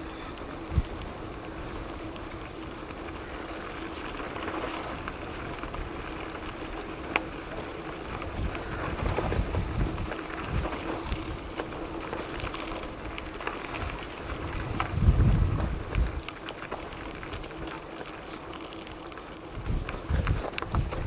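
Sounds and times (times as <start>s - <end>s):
bicycle tyre rumble: 0.0s - 21.0s
wind on microphone: 8.2s - 11.5s, 13.8s - 16.2s, 19.5s - 21.0s.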